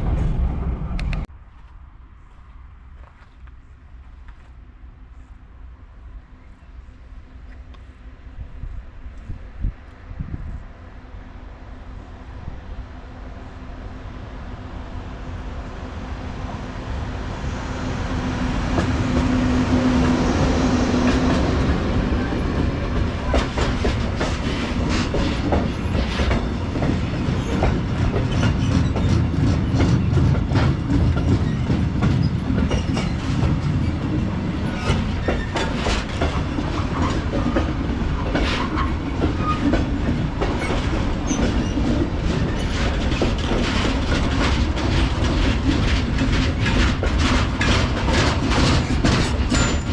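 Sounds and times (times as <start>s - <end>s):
freight train rumbling past: 0.0s - 1.4s, 3.7s - 49.9s
train hum: 0.0s - 49.9s
wheels clicking over rail joints: 21.0s - 49.9s.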